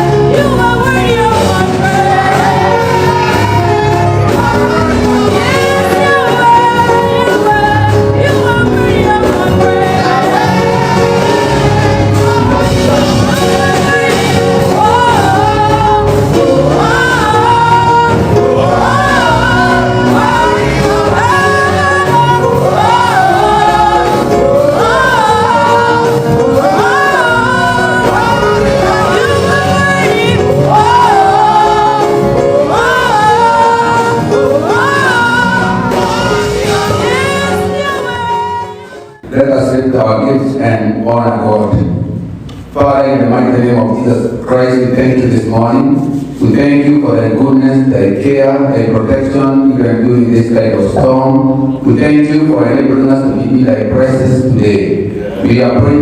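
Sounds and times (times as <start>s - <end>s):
voices singing gospel song: 0.0s - 41.7s, 42.5s - 56.0s
sustained instrumental accompaniment: 0.0s - 44.0s.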